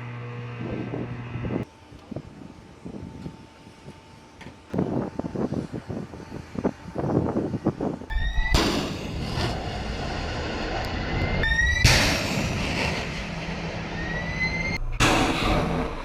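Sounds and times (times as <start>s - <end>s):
rocket motor rushing: 0.0s - 16.0s
rising whistle: 8.1s - 9.3s, 10.9s - 14.9s.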